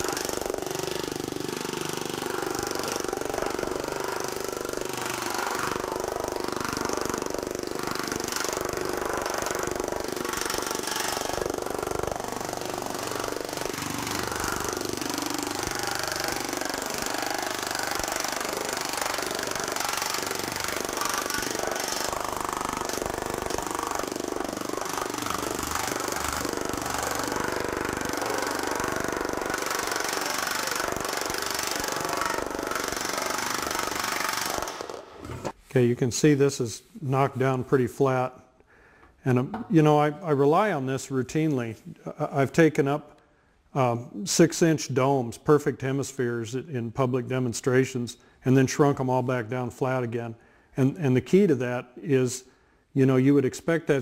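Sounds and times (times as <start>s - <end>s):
power hammer hammering steel: 0.0s - 35.6s.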